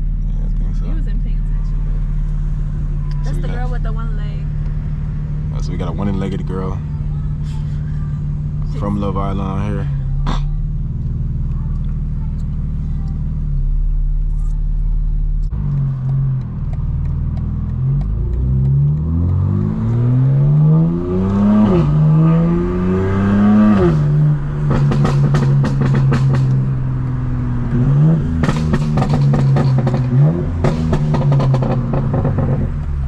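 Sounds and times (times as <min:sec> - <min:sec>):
car engine accelerating: 0:00.0 - 0:33.0
exhaust crackling pops: 0:23.7 - 0:33.0.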